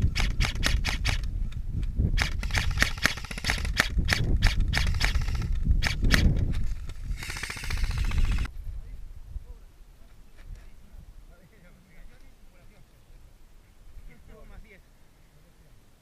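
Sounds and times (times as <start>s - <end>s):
rapid full-auto burst: 0.0s - 1.2s, 2.2s - 8.5s
airsoft gun shots: 0.0s - 1.3s, 2.2s - 6.6s, 7.2s - 8.5s.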